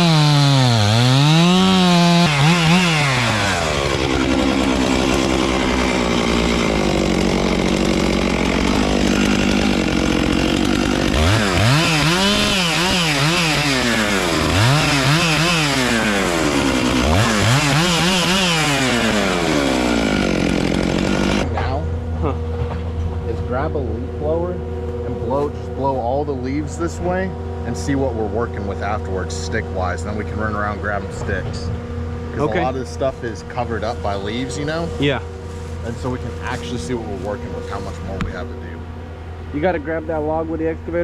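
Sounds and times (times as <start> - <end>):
chainsaw engine revving: 0.0 - 21.7, 32.2 - 39.7.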